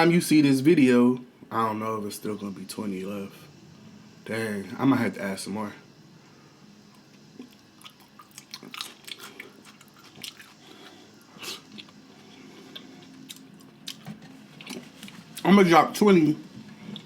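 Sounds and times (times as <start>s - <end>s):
chewing and crunching food: 6.9s - 15.5s.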